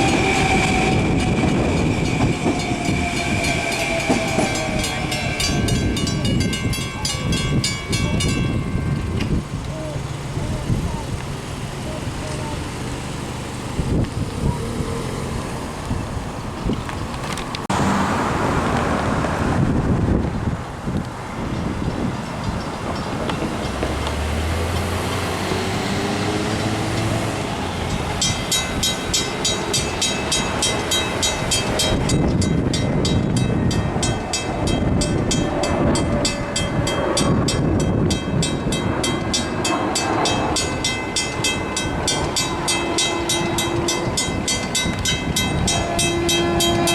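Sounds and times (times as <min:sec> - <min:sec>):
crossing warning bell ringing: 0:00.0 - 0:11.0, 0:21.4 - 0:46.9
train running past: 0:00.0 - 0:16.7, 0:17.7 - 0:46.9.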